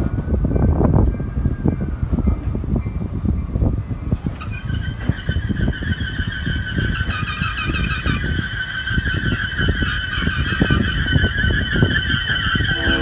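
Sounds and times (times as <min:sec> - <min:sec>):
locomotive rumble: 0:00.0 - 0:13.0
wheels squealing on track: 0:04.0 - 0:13.0.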